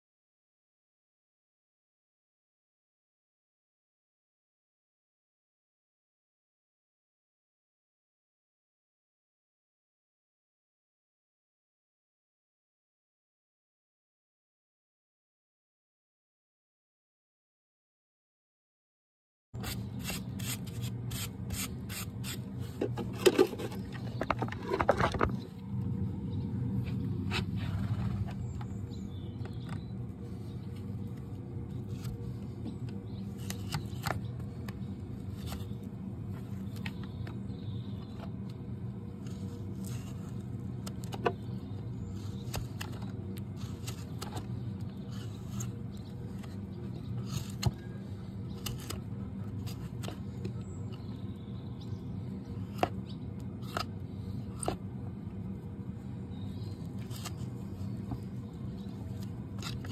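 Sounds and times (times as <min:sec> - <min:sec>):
tools cutting hoof: 0:19.6 - 0:25.4, 0:32.8 - 0:34.3, 0:42.1 - 0:51.1, 0:52.7 - 0:54.9, 0:56.8 - 0:58.3, 0:59.0 - 0:59.9
steady low hum: 0:19.6 - 0:59.9.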